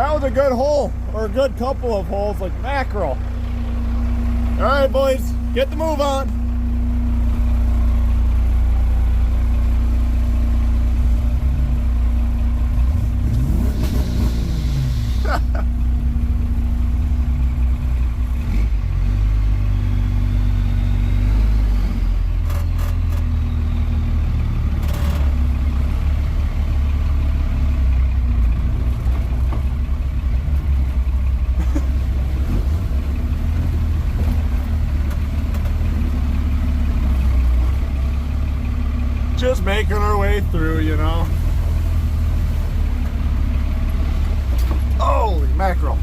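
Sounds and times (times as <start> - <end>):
truck engine running: 0.0 - 46.0
truck knocks and rattles: 26.9 - 39.1.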